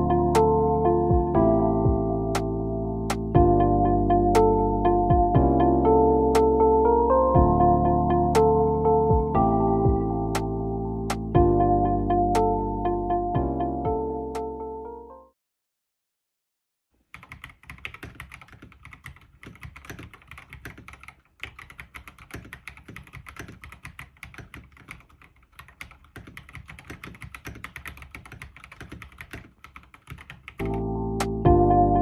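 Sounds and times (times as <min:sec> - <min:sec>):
music: 0:00.0 - 0:15.4, 0:30.6 - 0:32.0
mechanical keyboard typing: 0:17.0 - 0:31.4.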